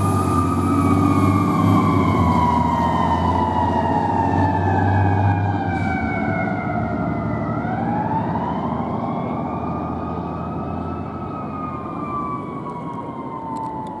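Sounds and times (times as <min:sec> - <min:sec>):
fire engine siren wailing: 0:00.0 - 0:14.0
truck engine rumble: 0:00.0 - 0:14.0.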